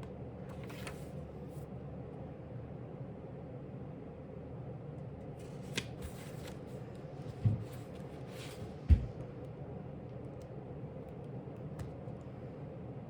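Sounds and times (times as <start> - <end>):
low room hum: 0.0 - 13.0
book page turning: 0.5 - 1.2, 5.4 - 6.8.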